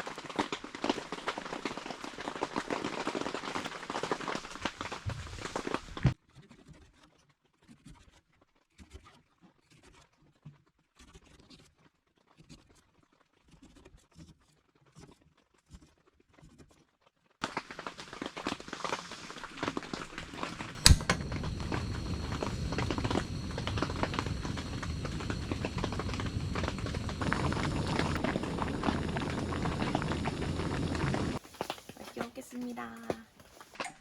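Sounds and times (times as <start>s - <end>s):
stew bubbling hard: 17.5s - 31.4s
sharp clack: 20.8s - 21.2s.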